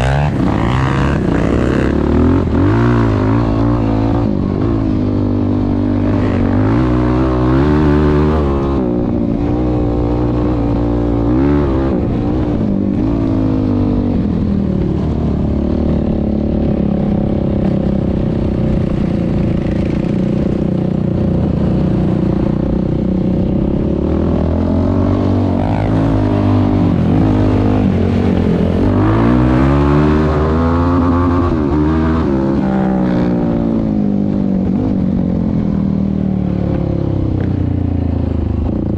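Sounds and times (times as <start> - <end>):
quad engine revving: 0.0 - 14.1, 19.8 - 33.7.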